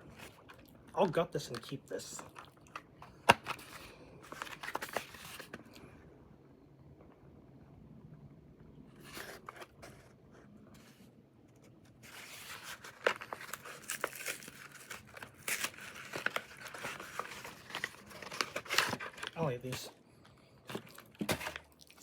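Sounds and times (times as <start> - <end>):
plastic packaging crinkling and tearing: 0.0 - 5.7, 12.0 - 19.8, 20.6 - 22.0.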